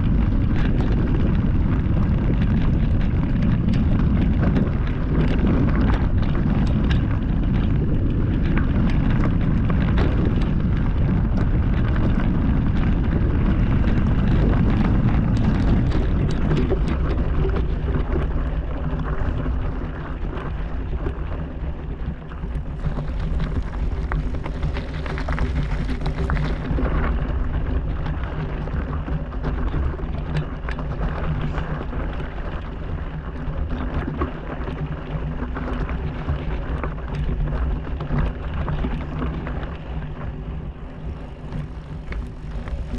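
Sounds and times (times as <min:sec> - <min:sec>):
bike rattling over rocks: 0:00.0 - 0:42.9
wind buffeting microphone: 0:00.0 - 0:42.9
steady buzzing hum: 0:40.6 - 0:42.9.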